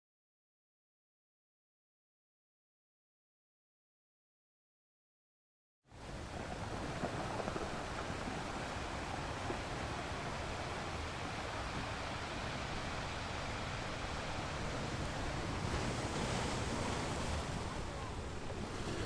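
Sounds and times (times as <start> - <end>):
sea surf on rocky beach: 6.0 - 19.0.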